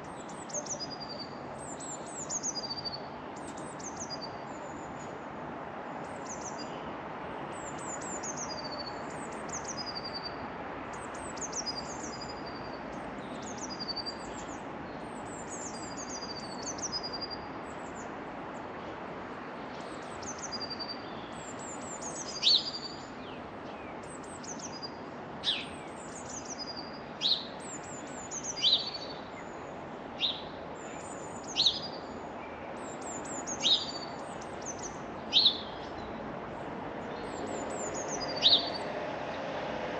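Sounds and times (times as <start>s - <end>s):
small birds chirping: 0.0s - 5.2s, 7.5s - 18.2s, 19.6s - 39.0s
outdoor background noise: 0.0s - 39.9s.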